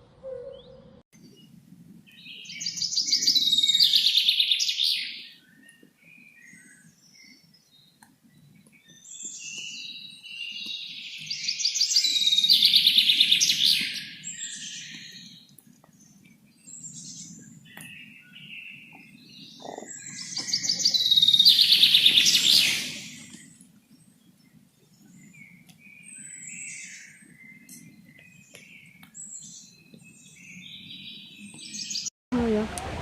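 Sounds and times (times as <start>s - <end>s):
soft bird chirps: 0.3s - 32.1s
songbird trilling: 2.2s - 5.2s, 17.7s - 23.3s.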